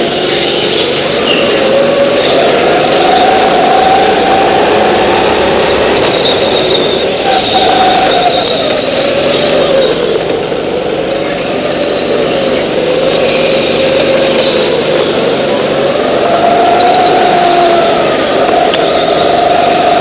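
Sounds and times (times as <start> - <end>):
go-kart engine running hard: 0.0 - 20.0.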